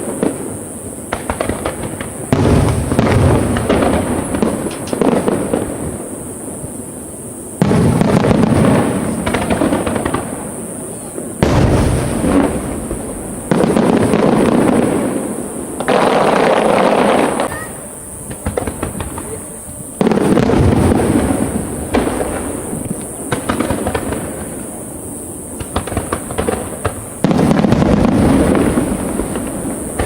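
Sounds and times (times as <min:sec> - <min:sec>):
fireworks crackling and rumble: 0:00.0 - 0:30.0
firework shells bursting: 0:11.3 - 0:24.7.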